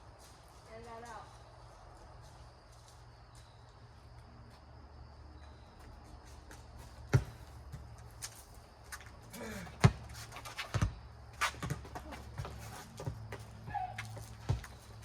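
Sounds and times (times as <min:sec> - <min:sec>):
rubber ball smacking pavement: 0:07.0 - 0:08.5, 0:09.4 - 0:15.0.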